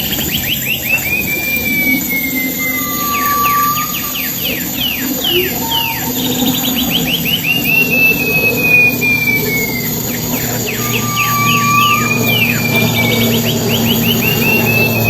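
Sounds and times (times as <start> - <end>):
songbird whistling song: 0.0 - 15.0.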